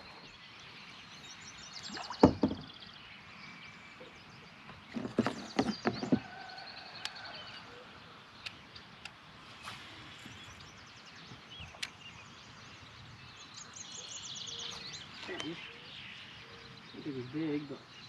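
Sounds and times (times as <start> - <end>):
birds trilling and chirping: 0.0 - 18.0
hollow knocks in metal boat: 2.2 - 2.7, 5.0 - 6.3.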